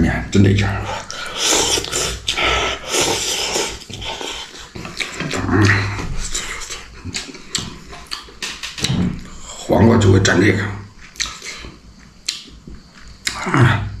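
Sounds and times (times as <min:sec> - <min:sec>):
wet chewing: 0:01.0 - 0:09.5, 0:10.9 - 0:13.5
noodles slurped: 0:01.1 - 0:05.4
lip-smacking clicks: 0:06.7 - 0:09.3.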